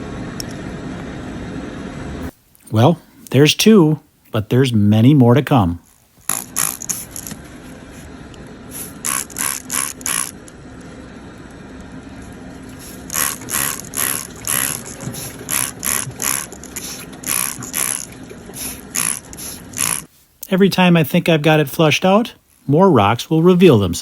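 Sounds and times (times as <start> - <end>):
steady low hum: 0.0 - 24.0
trimming tool scraping hoof: 8.8 - 10.4, 12.8 - 20.1.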